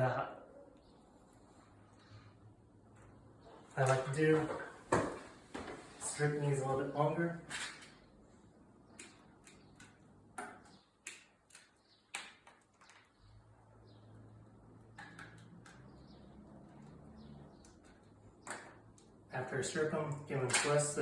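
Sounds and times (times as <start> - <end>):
wire strippers clicking: 8.8 - 13.3.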